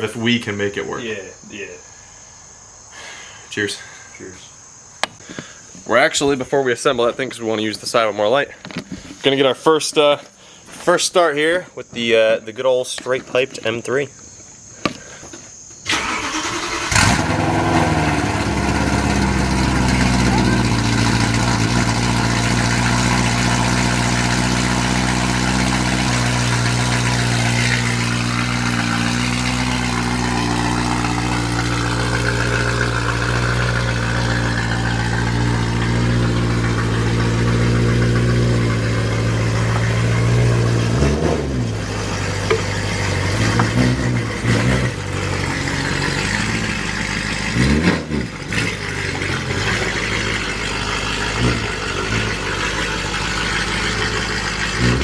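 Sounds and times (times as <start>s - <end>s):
engine revving: 15.9s - 55.0s
loud car engine idling: 15.9s - 55.0s.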